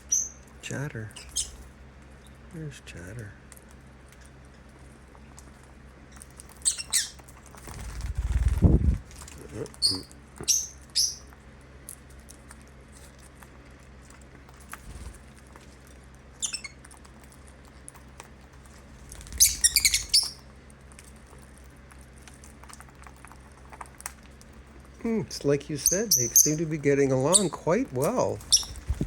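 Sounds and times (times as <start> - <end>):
lovebirds chirping: 0.0 - 2.4, 6.1 - 7.3, 9.7 - 11.3, 16.4 - 16.8, 19.2 - 20.5, 25.0 - 29.0
beaks and feet tapping on table: 19.2 - 20.4, 25.8 - 29.0.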